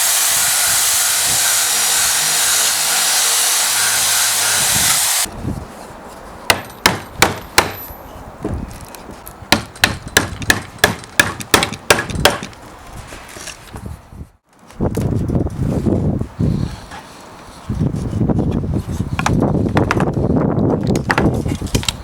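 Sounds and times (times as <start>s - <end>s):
loud steady hiss: 0.0s - 5.3s.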